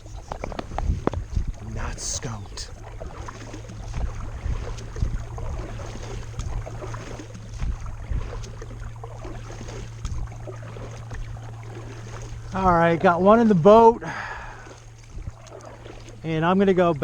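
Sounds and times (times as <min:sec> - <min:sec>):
small water splashes: 0:00.0 - 0:17.0
steady low hum: 0:00.0 - 0:17.0.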